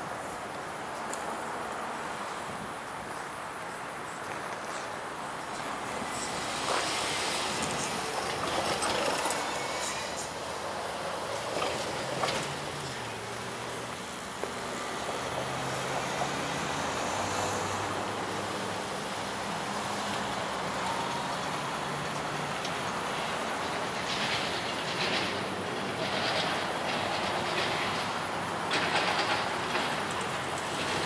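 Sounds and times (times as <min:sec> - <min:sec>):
diesel locomotive engine drone: 0:00.0 - 0:31.0
rail clicks: 0:04.5 - 0:16.5, 0:19.4 - 0:31.0.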